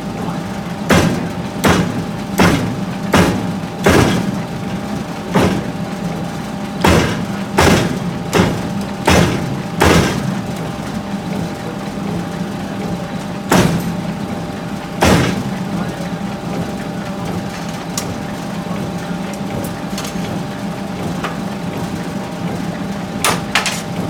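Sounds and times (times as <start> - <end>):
steady machine hum: 0.0 - 24.0
hammer striking hot steel: 0.9 - 4.4, 6.8 - 10.3, 13.5 - 14.0, 15.0 - 15.5, 23.2 - 23.9.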